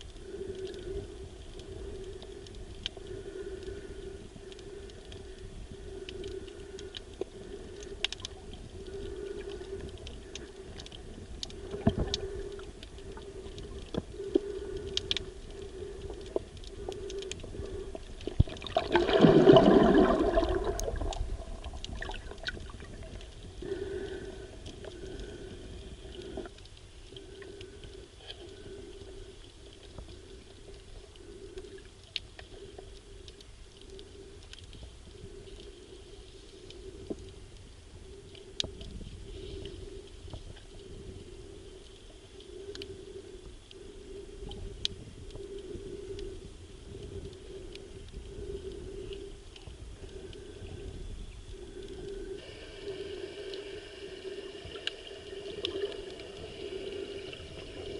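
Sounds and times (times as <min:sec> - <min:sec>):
muffled underwater sea noise: 0:00.0 - 0:57.9
sharp underwater clicks: 0:00.2 - 0:30.3
rushing surge of water: 0:18.6 - 0:21.0.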